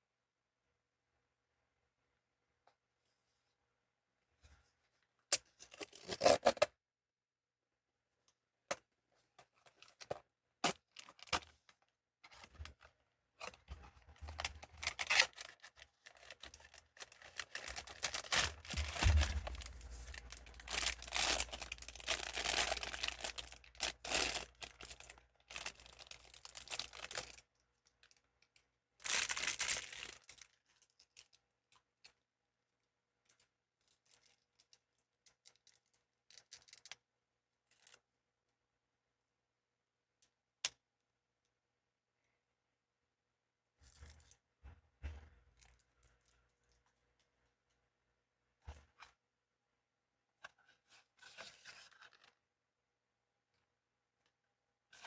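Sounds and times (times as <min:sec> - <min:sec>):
packaging tearing and crinkling: 0:14.3 - 0:27.4, 0:29.1 - 0:30.4.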